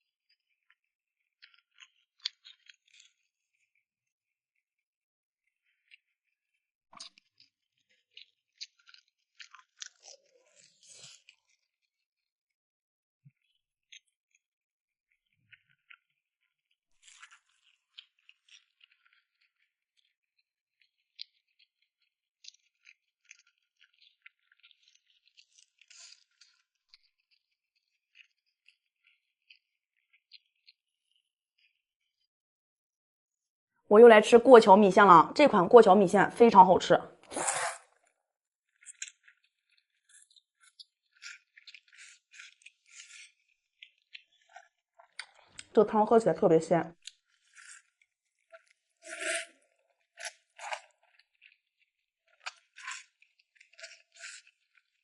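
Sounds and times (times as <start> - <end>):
close-miked chewing: 0.3 - 3.6, 7.0 - 12.0, 15.2 - 21.8, 22.4 - 32.3, 38.7 - 46.2, 46.9 - 55.0
faint eating sounds: 0.3 - 3.8, 5.4 - 12.6, 13.2 - 14.5, 15.1 - 32.3, 34.1 - 55.0.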